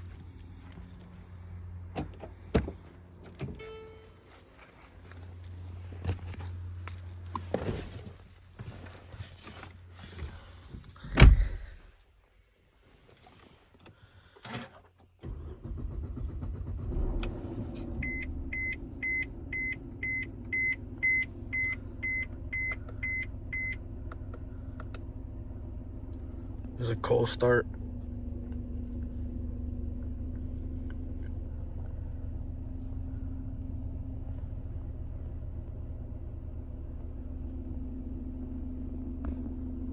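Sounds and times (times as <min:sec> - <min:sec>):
handling noises: 0:00.0 - 0:11.8
car engine starting and idling: 0:00.0 - 0:11.9, 0:13.4 - 0:39.9
loud thump: 0:11.1 - 0:11.8.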